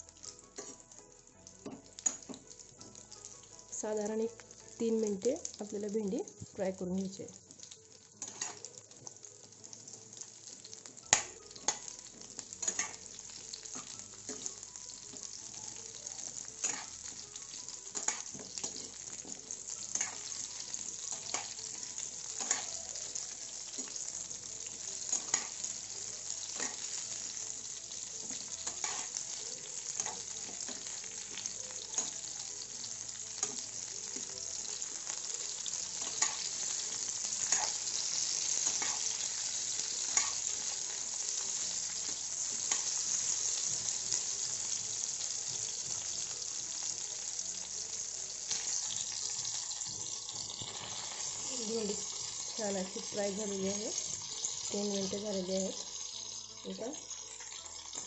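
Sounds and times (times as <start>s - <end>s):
okra sizzling in hot oil: 0.0s - 58.0s
spoon clinking and scraping a pan: 8.2s - 8.7s, 12.6s - 15.3s, 16.1s - 17.2s, 17.9s - 24.0s, 24.9s - 25.7s, 26.3s - 32.5s, 35.4s - 43.7s.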